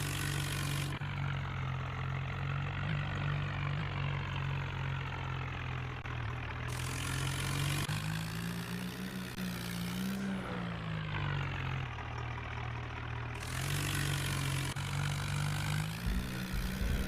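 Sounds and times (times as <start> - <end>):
tractor diesel engine running: 0.0 - 17.0
low bumps: 15.9 - 17.0.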